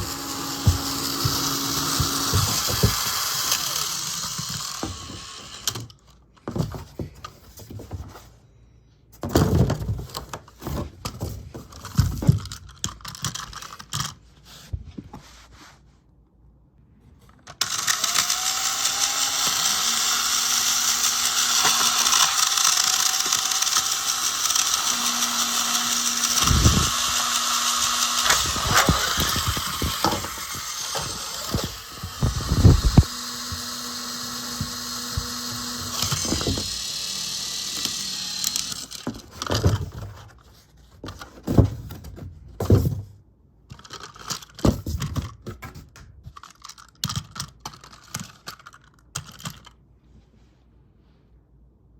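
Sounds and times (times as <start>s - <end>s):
toy train clattering: 0.0s - 6.1s, 11.8s - 14.2s, 17.5s - 39.7s, 43.7s - 45.3s, 46.3s - 49.8s
toy train motor whirring: 0.0s - 6.1s, 17.4s - 39.6s.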